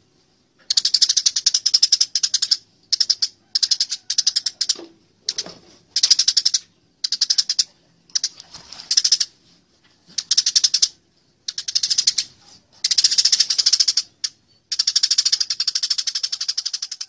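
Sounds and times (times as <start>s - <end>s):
sparrows chattering: 0.7s - 8.3s, 10.2s - 17.0s.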